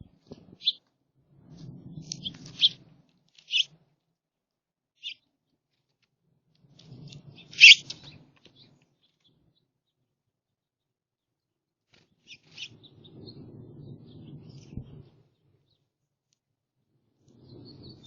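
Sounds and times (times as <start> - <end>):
songbirds chirping: 5.0 - 5.3, 6.8 - 10.0.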